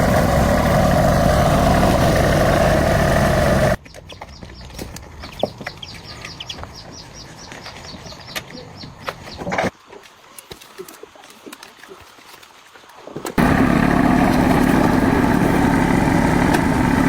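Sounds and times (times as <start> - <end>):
truck engine running: 0.0 - 3.8, 13.4 - 17.0.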